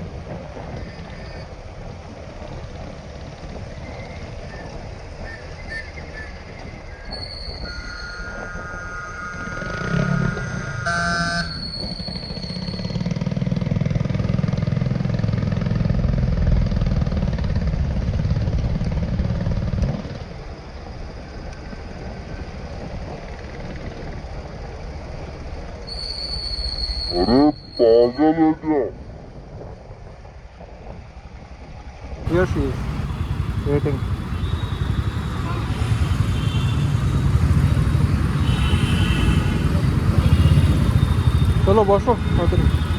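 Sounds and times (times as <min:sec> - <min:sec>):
road noise: 0:00.0 - 0:16.4, 0:32.2 - 0:42.9
vehicle horns honking: 0:08.4 - 0:11.6, 0:32.3 - 0:42.9
motorcycle engine rumble: 0:32.3 - 0:42.9.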